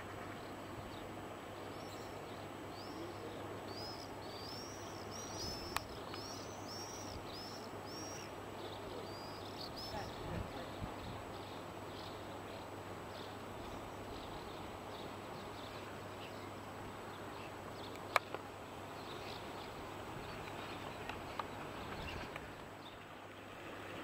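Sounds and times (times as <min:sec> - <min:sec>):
small bird chirping: 0:02.8 - 0:12.2.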